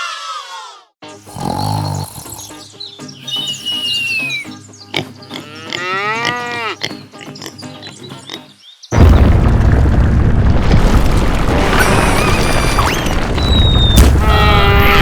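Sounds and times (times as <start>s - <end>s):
music: 1.0s - 8.9s
short whistling tones: 3.2s - 4.6s
deep rumbling boom: 9.0s - 15.0s.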